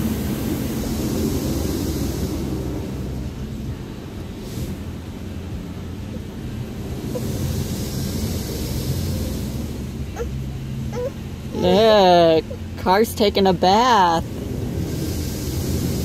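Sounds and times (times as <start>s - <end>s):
water spray hissing against car: 0.0s - 3.6s, 4.3s - 5.8s, 6.7s - 10.3s, 14.2s - 16.0s
car wash machinery rumble: 0.0s - 16.0s.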